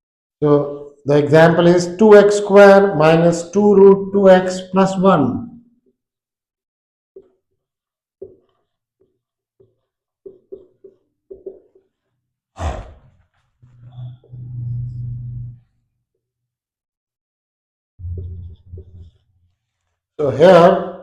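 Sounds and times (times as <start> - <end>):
soft taps: 8.2 - 11.9
low voiced hum: 13.6 - 15.8.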